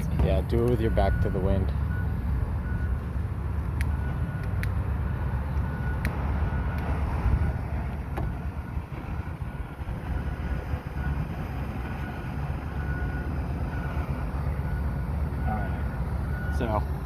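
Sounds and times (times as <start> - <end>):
wind buffeting microphone: 6.1 - 13.2.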